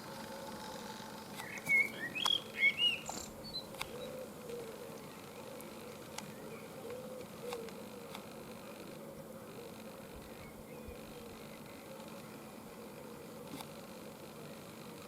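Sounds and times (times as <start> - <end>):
steady background hiss: 0.0 - 15.0
birds chirping: 0.5 - 7.1.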